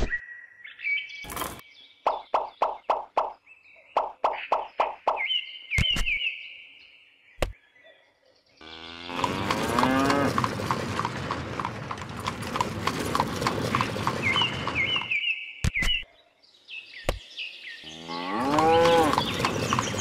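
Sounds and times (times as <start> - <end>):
cow mooing: 8.6 - 10.4, 17.9 - 19.3
hooves clip-clopping: 9.2 - 15.1, 18.5 - 20.0
steady rumble: 9.5 - 15.1.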